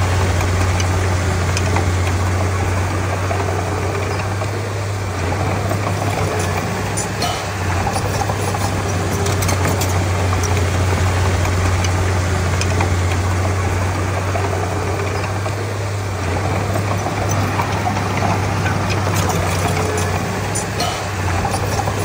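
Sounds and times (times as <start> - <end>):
bulldozer diesel engine humming: 0.0 - 22.0.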